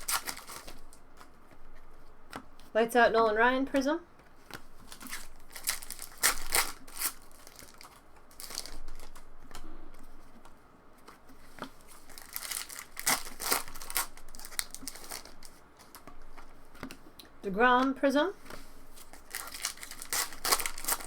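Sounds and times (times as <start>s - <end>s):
wrappers torn and crinkled: 0.0s - 1.0s, 4.9s - 9.3s, 11.8s - 16.0s, 19.0s - 21.0s.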